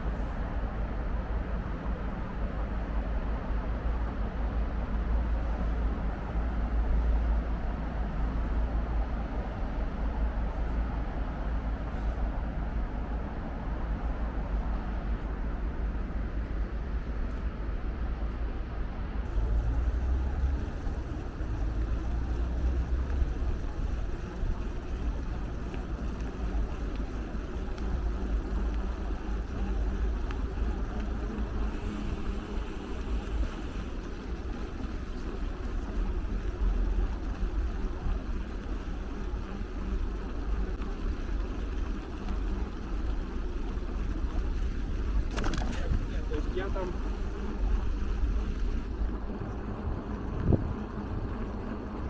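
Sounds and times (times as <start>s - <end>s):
city traffic rumble: 19.3s - 50.2s.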